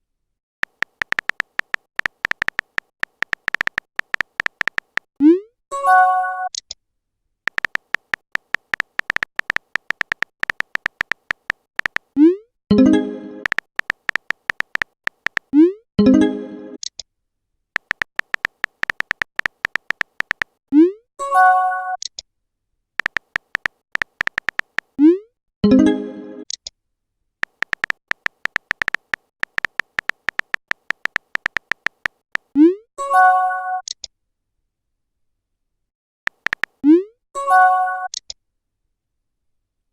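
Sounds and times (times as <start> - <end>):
short typing blips: 0.6 - 5.4, 7.5 - 15.7, 17.8 - 20.9, 23.0 - 25.2, 27.4 - 32.6, 36.3 - 37.0.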